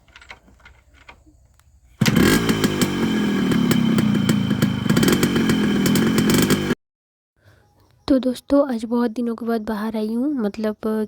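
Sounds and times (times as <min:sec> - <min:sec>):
exhaust popping: 0:02.0 - 0:06.8
motorcycle engine starting and running: 0:02.0 - 0:06.8.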